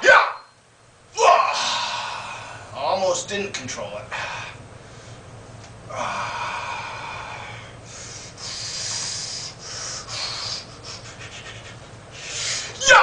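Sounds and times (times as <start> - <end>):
man breathing hard: 4.1 - 5.2, 5.9 - 12.8.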